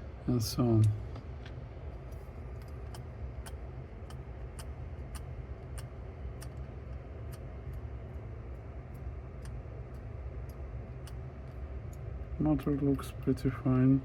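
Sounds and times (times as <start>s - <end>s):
steady low hum: 0.0s - 14.0s
light ticking clicks: 8.8s - 13.4s.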